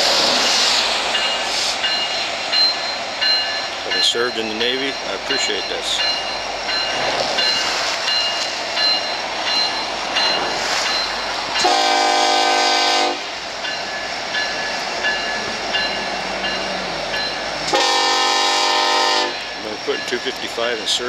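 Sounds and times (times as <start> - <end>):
freight locomotives rumbling past: 0.0 - 21.0
locomotive air horn blast: 11.6 - 13.3, 17.7 - 19.4.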